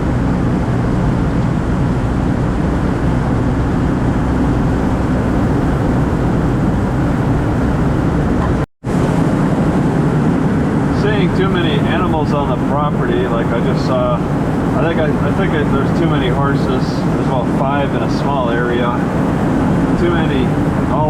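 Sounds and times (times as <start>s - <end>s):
car engine cruising: 0.0s - 21.0s
tyre road noise: 0.0s - 21.0s.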